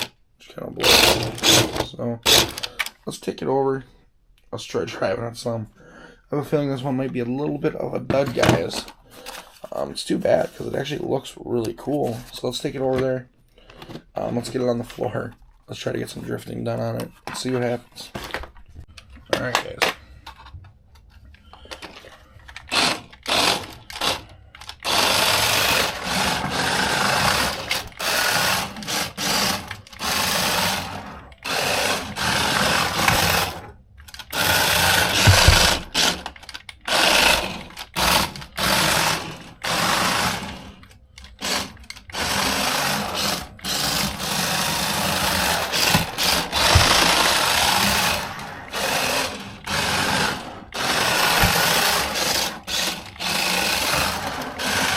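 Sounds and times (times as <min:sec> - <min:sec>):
small electric motor whirring: 0:00.8 - 0:02.7, 0:41.4 - 0:54.9.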